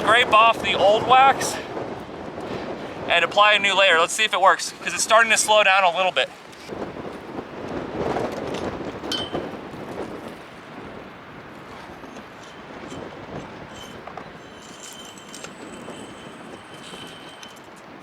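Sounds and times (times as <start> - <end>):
metal scraper scraping wax: 12.4 - 17.7.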